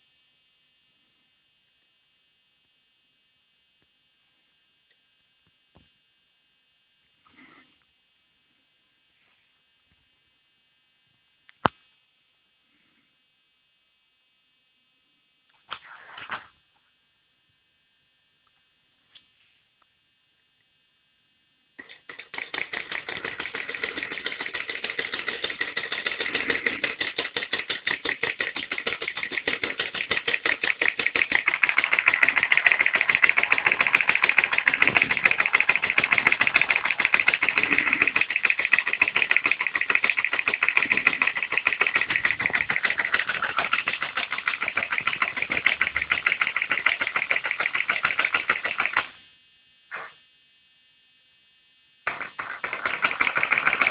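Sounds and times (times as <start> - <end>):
electric motor clattering: 21.8 - 49.2, 52.1 - 53.9.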